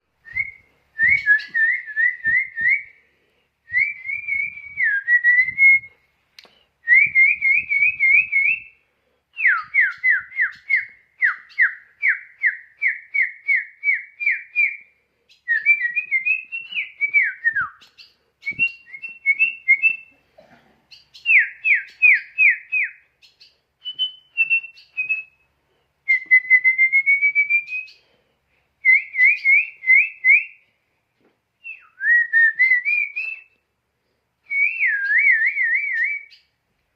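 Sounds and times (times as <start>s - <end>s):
bird singing clear whistles: 0.2s - 2.9s, 9.4s - 20.1s, 20.9s - 25.4s, 26.1s - 28.1s, 28.8s - 30.6s, 31.6s - 33.6s, 34.5s - 36.5s.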